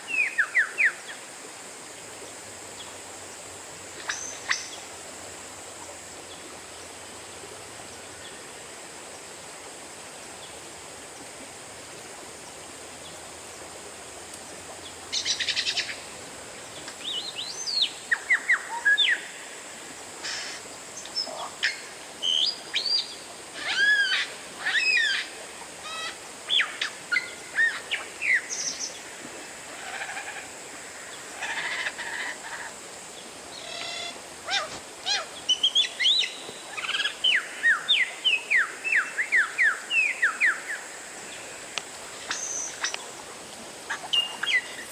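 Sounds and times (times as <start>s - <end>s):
steady background hiss: 0.0s - 44.9s.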